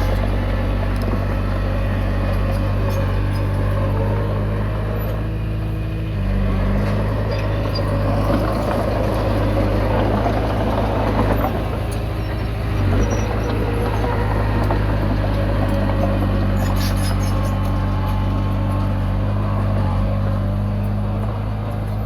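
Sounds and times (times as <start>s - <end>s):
bulldozer diesel engine: 0.0s - 22.0s
rough rattling and scraping: 6.6s - 22.0s.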